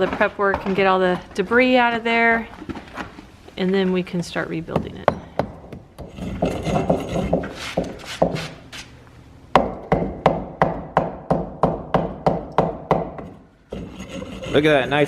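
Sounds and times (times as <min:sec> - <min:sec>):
hand tool scraping mortar off bricks: 0:06.0 - 0:08.9, 0:13.7 - 0:15.0.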